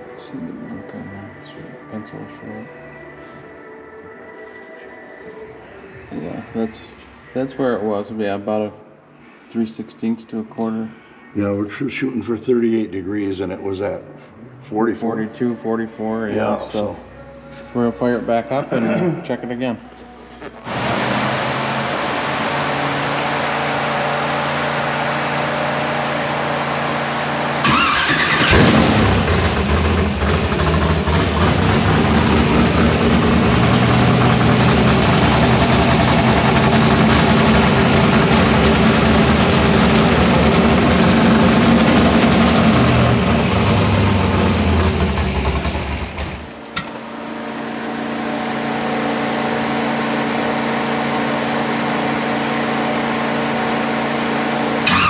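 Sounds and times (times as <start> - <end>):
loud uneven engine running: 20.6 - 55.0
engine cranking: 27.6 - 31.5.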